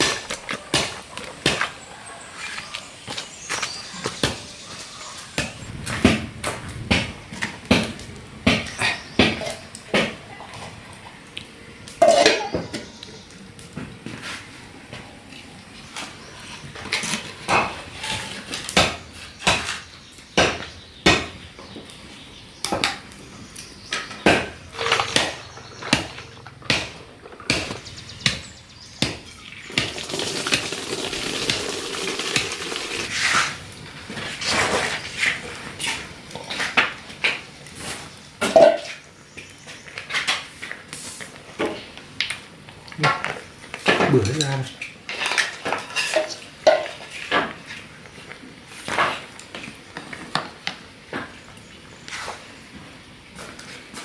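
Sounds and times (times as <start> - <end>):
dishes and utensils clinking: 12.0 - 13.0, 24.0 - 26.5, 38.4 - 39.0, 43.9 - 47.5.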